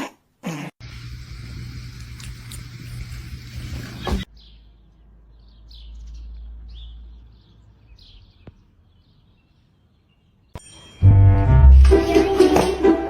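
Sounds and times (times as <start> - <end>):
small birds chirping: 2.0 - 10.6.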